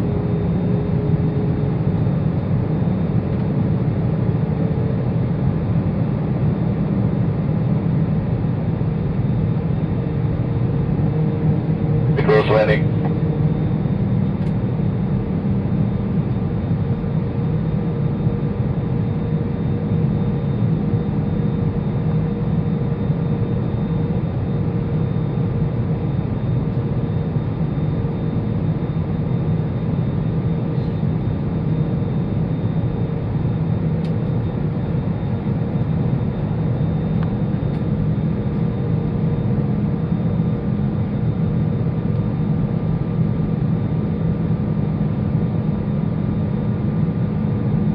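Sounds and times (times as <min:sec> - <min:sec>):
aircraft cabin engine drone: 0:00.0 - 0:47.9
faint steady tones: 0:12.2 - 0:13.1.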